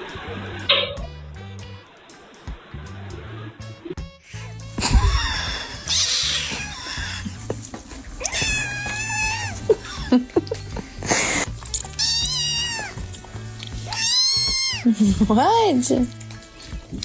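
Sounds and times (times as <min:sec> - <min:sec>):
background music: 0:00.0 - 0:17.0
cat yowling: 0:04.8 - 0:07.4, 0:08.2 - 0:10.1, 0:11.8 - 0:13.2, 0:13.8 - 0:15.0.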